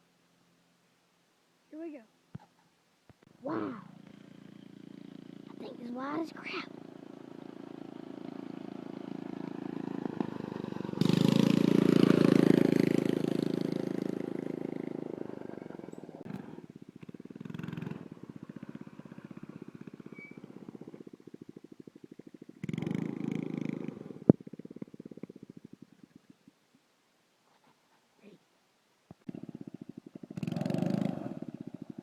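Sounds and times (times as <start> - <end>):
mini-bike engine popping exhaust: 3.8 - 26.5, 29.1 - 32.0.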